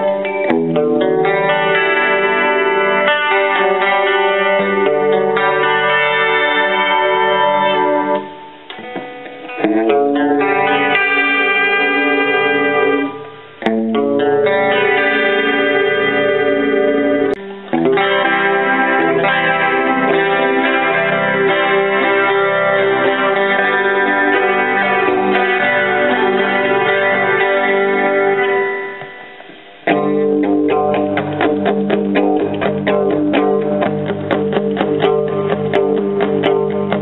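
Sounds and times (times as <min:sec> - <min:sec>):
clean electric guitar chords: 0:00.0 - 0:37.0
picked electric guitar notes: 0:00.0 - 0:37.0.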